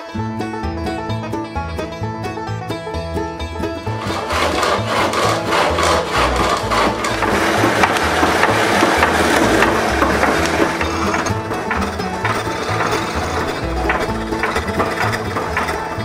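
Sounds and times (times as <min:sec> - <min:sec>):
lathe tool scraping wood: 0:03.8 - 0:16.0.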